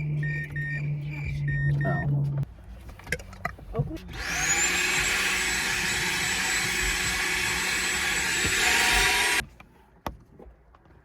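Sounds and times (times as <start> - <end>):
vacuum cleaner running: 4.2 - 9.4.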